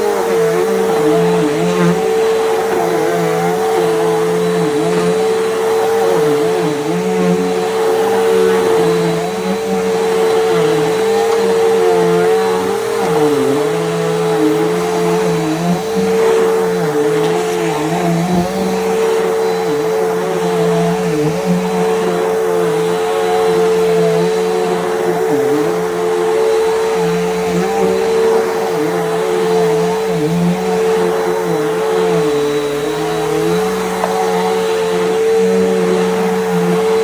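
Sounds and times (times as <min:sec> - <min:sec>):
upright vacuum cleaner running: 0:00.0 - 0:37.0.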